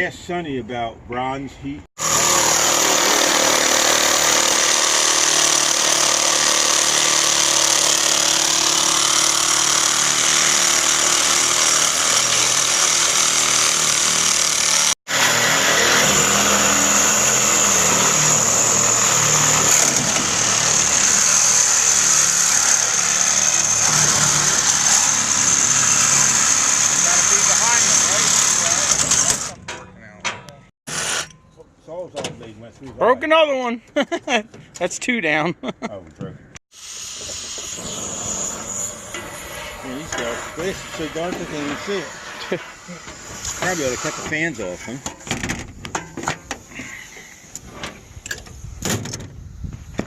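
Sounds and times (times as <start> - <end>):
reciprocating saw cutting steel: 2.0 - 29.6, 30.9 - 31.4, 36.7 - 45.0.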